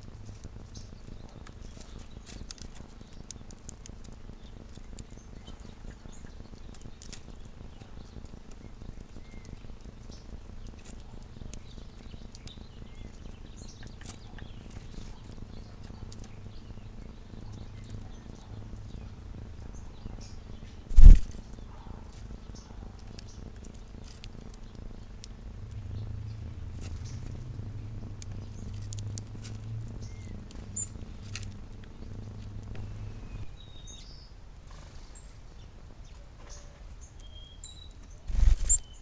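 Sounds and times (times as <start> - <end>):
steady low hum: 0.0 - 36.2, 38.0 - 39.0
faint bird chirps: 36.0 - 39.0.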